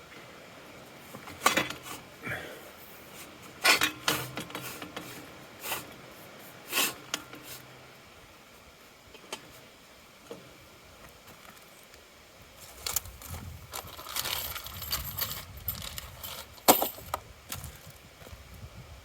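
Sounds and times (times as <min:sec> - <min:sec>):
metal clinks and rattles: 0:13.7 - 0:17.2.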